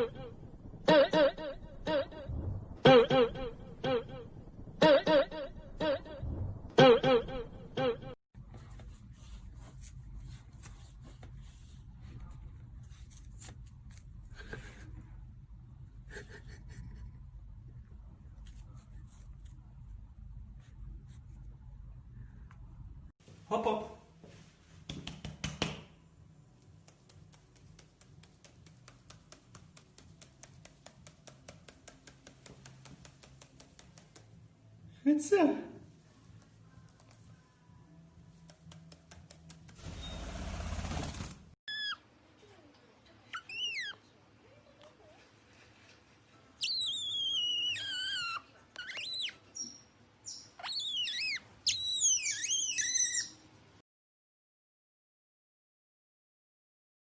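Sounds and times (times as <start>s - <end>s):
sharp regular ticks: 26.6s - 34.4s, 38.4s - 39.8s
animal whistling squeals: 41.7s - 42.0s, 46.6s - 53.4s.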